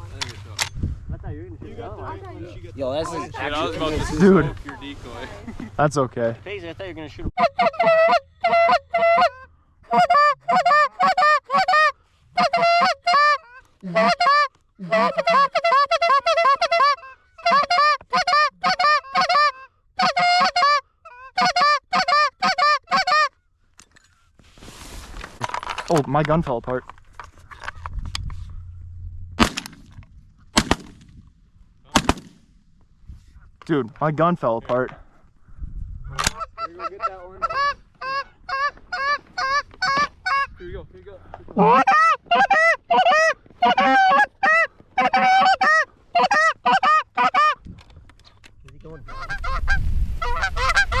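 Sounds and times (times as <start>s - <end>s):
goose honks and clucks: 7.4s - 23.4s, 36.2s - 40.6s, 41.6s - 47.6s, 48.8s - 51.0s
shotgun shots: 29.4s - 29.9s, 30.6s - 31.1s, 31.9s - 32.5s.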